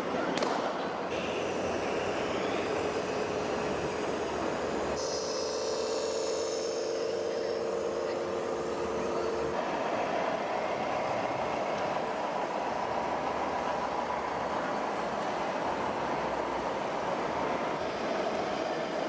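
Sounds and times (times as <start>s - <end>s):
toy electric motor whine: 1.1s - 9.6s.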